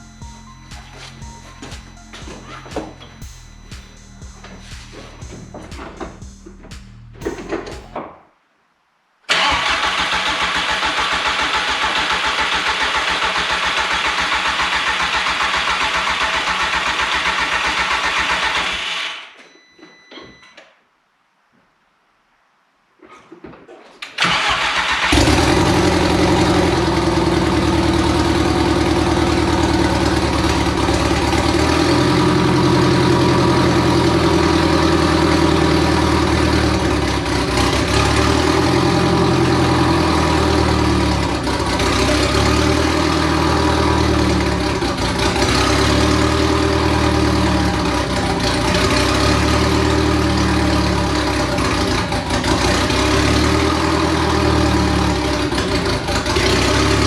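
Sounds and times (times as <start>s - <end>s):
car engine starting: 9.3s - 19.2s, 24.2s - 57.0s
car engine idling loudly: 25.1s - 57.0s.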